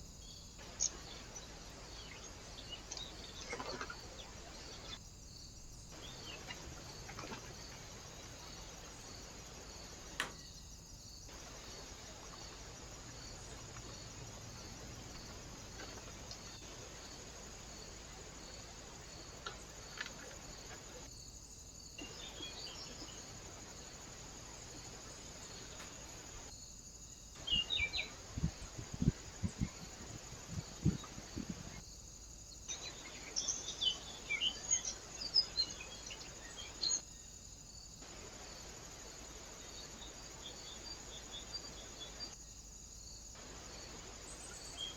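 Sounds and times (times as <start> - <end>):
cricket-like chirp: 0.0 - 44.9
steady hiss: 0.0 - 44.9.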